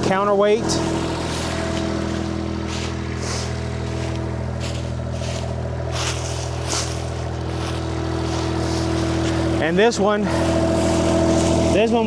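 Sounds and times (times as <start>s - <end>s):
diesel engine idling: 0.0s - 12.0s
short scuffing noises: 1.4s - 9.6s.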